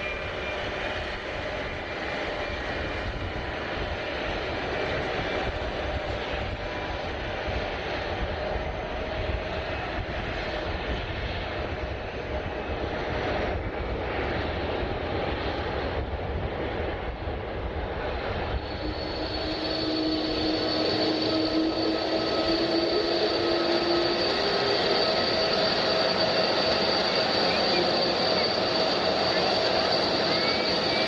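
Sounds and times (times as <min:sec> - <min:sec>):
jet engines roaring: 0:00.0 - 0:31.0
high engine whine: 0:17.5 - 0:31.0.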